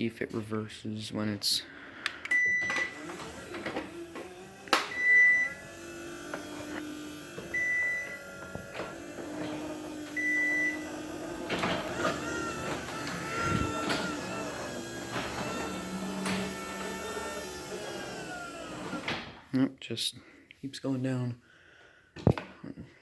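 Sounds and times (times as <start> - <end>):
garage door opener motor running: 2.4 - 19.5.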